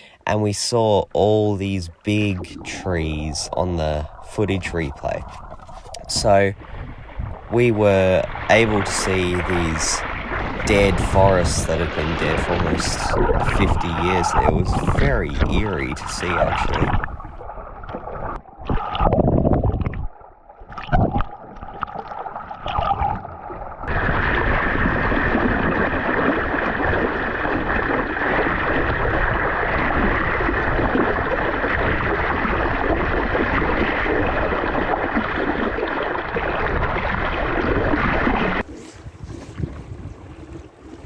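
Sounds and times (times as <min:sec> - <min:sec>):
wind and water rushing: 0:00.0 - 0:19.9, 0:22.6 - 0:41.0
water surging: 0:00.3 - 0:17.4
underwater gurgling: 0:00.3 - 0:41.0.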